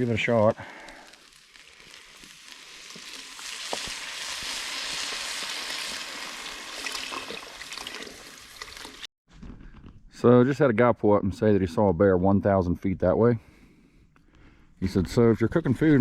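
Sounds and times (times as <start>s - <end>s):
broth sizzling in hot pot: 0.0s - 9.1s.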